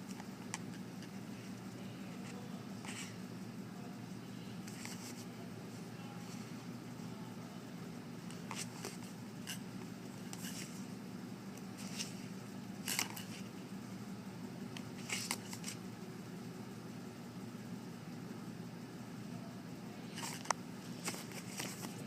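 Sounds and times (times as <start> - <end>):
low room hum: 0.0 - 22.0
papers rustling: 15.0 - 15.8, 20.2 - 22.0.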